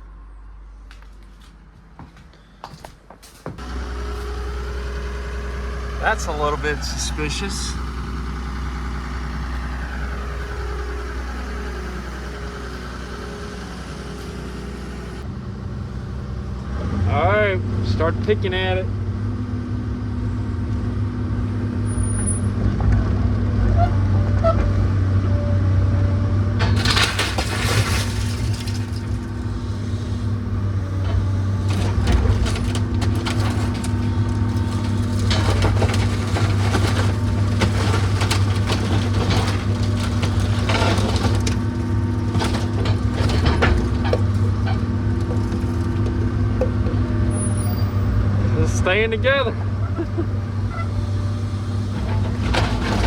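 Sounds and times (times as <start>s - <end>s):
heavy machine engine running: 3.6s - 53.0s
timber cracking and splintering: 26.7s - 46.8s.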